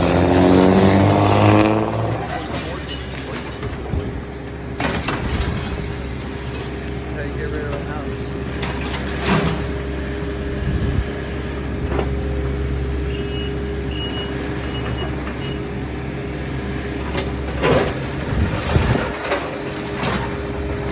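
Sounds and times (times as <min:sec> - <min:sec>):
diesel machinery rumbling: 0:00.0 - 0:20.9.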